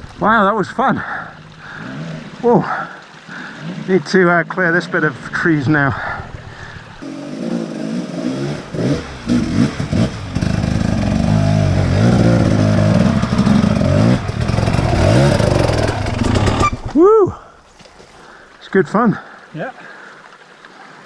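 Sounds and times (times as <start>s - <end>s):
dirt bike engine revving: 7.0s - 16.9s.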